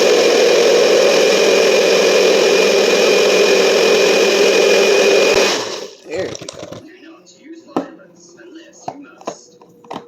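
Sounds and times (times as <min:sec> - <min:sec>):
blender whirring: 0:00.0 - 0:06.8.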